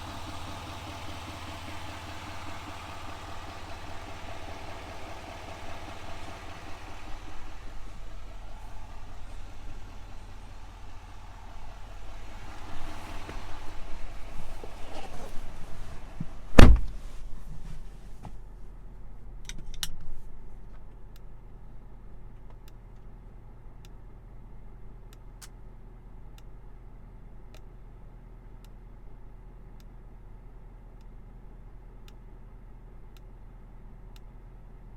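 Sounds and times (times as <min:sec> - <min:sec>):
diesel engine humming: 0:00.0 - 0:34.9
loud thud: 0:16.5 - 0:17.1
faint regular ticking: 0:20.9 - 0:34.9.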